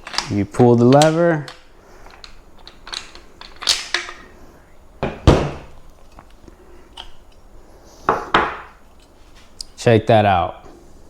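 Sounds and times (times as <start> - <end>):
heavy metal thunks: 5.0 - 5.8.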